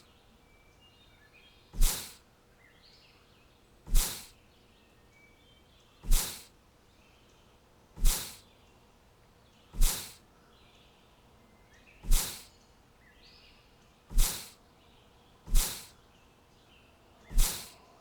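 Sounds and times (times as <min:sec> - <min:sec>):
loud whooshing hisses: 0:01.8 - 0:02.2, 0:03.9 - 0:04.3, 0:06.0 - 0:06.5, 0:08.0 - 0:08.4, 0:09.8 - 0:10.2, 0:12.0 - 0:12.5, 0:14.1 - 0:14.6, 0:15.5 - 0:15.9, 0:17.3 - 0:17.8.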